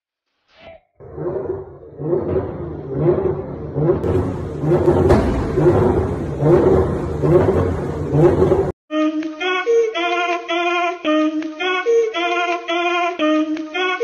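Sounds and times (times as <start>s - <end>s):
car engine revving: 1.0s - 8.8s
exhaust backfire bang: 1.2s - 8.8s.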